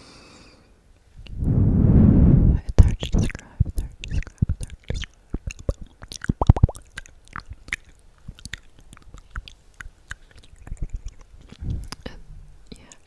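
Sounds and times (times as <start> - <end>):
wet mouth clicks and smacks: 2.7 - 12.1.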